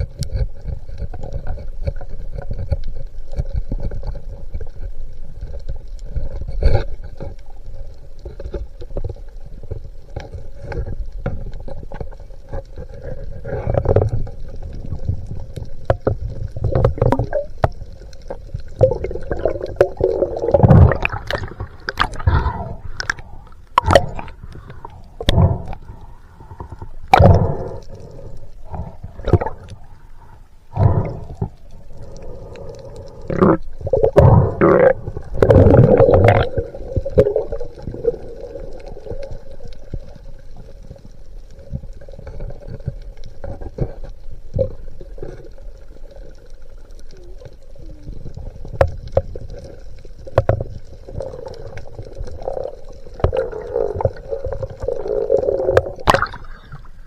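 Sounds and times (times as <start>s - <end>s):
underwater knocks and thumps: 0.0s - 7.4s, 13.6s - 23.2s, 23.8s - 25.8s, 28.7s - 29.8s, 33.8s - 38.0s, 50.3s - 52.3s, 53.1s - 56.7s
faint steady hum: 0.0s - 57.0s
underwater gurgling: 0.0s - 57.0s.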